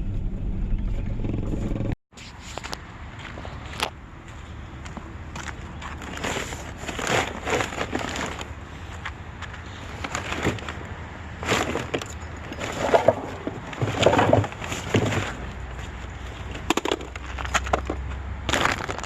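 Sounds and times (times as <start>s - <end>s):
rustling: 5.4s - 10.8s, 11.4s - 17.8s
objects knocking and clattering: 11.4s - 15.9s, 16.5s - 19.0s.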